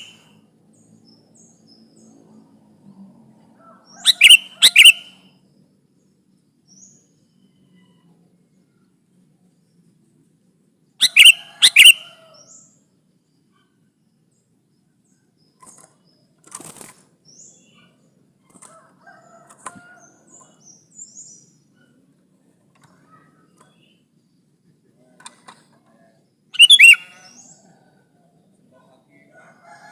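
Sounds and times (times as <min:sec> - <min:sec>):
bird calls: 0:00.0 - 0:00.4, 0:03.6 - 0:05.3, 0:11.0 - 0:12.8, 0:25.0 - 0:28.0
faint high chirps: 0:00.0 - 0:01.1, 0:04.0 - 0:05.5, 0:11.0 - 0:16.3, 0:26.1 - 0:27.8.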